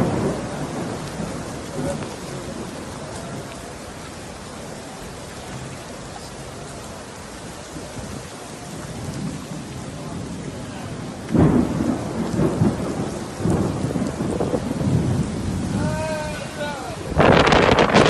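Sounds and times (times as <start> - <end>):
thunder clap and rumble: 0.0 - 4.8, 7.6 - 18.0
steady rain: 0.0 - 18.0.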